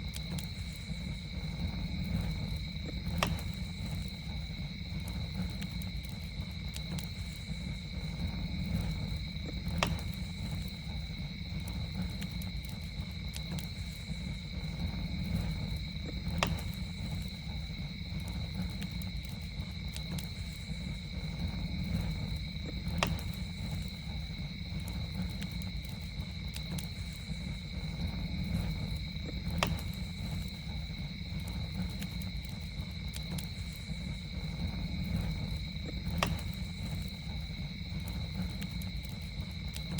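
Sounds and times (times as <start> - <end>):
campfire flames rumbling: 0.0 - 39.9
fire crackling pops: 0.0 - 39.9
night insects droning: 0.0 - 39.9.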